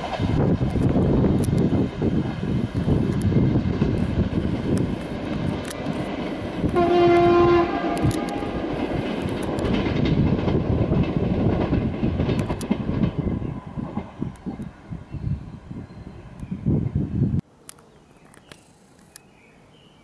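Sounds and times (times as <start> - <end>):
train wheels rumbling on rails: 0.0 - 17.4
train horn: 6.7 - 8.7.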